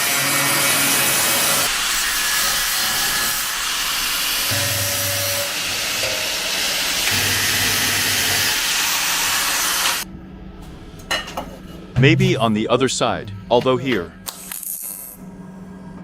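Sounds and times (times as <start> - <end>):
power tool hissing: 0.1 - 10.0.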